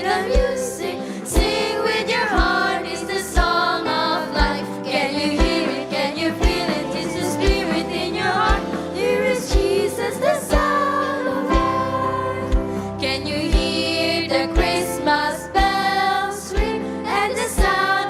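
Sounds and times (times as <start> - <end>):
children's choir singing gospel: 0.0 - 18.0
low drum beat: 6.4 - 10.8.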